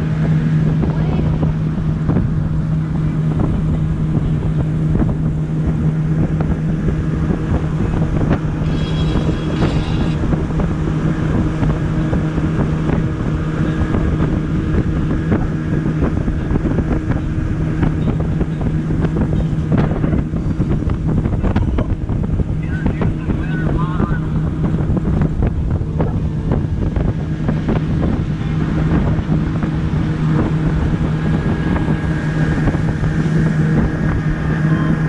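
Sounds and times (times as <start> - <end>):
motorboat engine running: 0.0 - 35.0
wind buffeting microphone: 0.0 - 35.0.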